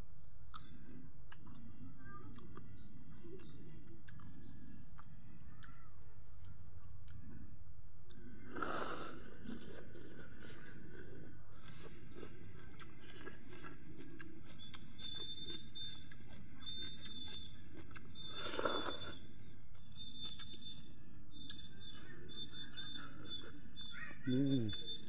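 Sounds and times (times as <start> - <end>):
person chewing and crunching food: 0.5 - 24.0.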